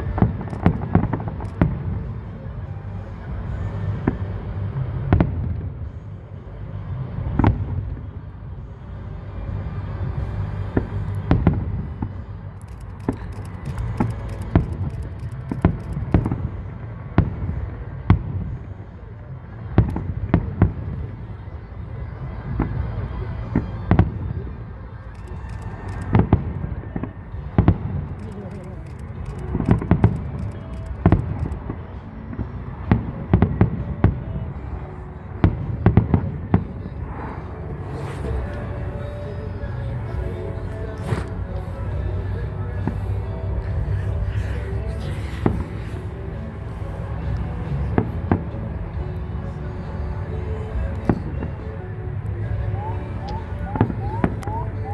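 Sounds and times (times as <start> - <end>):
steady low rumble: 0.0 - 54.9
fireworks crackling: 0.5 - 1.8, 12.6 - 16.4, 28.1 - 31.7.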